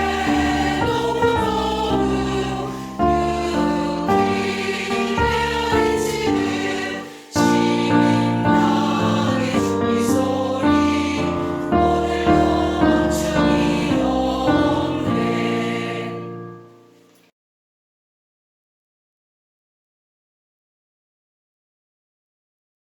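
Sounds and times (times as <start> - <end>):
choir singing sustained chords: 0.0 - 16.9.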